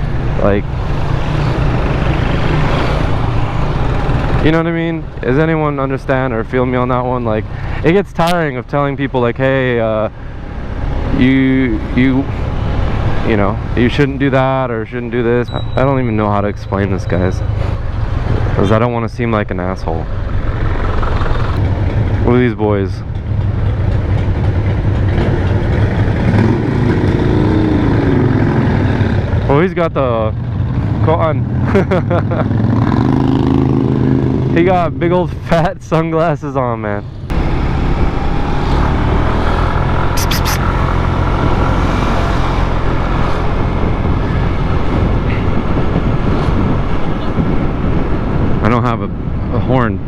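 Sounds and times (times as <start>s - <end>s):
wind rushing over microphone: 37.4s - 50.0s.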